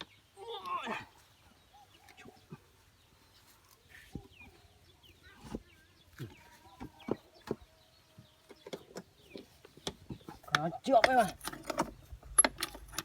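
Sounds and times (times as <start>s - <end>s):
sharp knocks and clicks: 8.5s - 13.0s.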